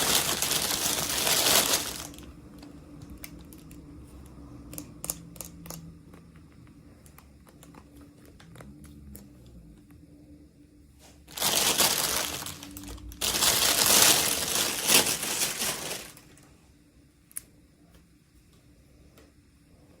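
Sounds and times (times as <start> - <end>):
packaging crinkling: 0.0 - 2.3, 11.3 - 16.4.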